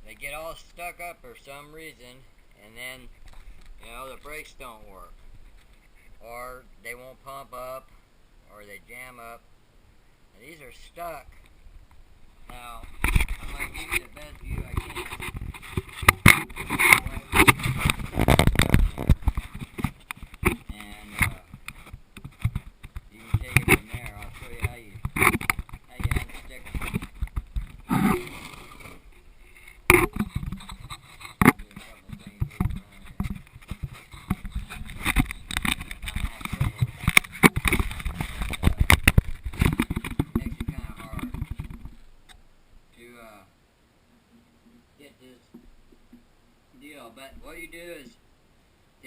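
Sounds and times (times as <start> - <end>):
handling knocks and rustling: 12.5 - 42.1.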